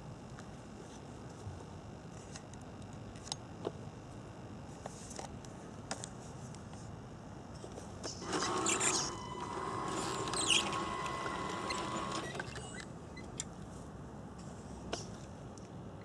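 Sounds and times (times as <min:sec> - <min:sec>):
small electric motor whirring: 0:08.2 - 0:12.9.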